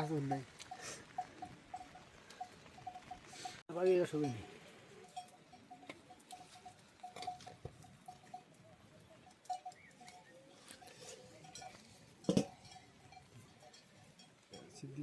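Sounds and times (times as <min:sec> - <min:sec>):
light knocks and clinks: 0:10.8 - 0:14.8.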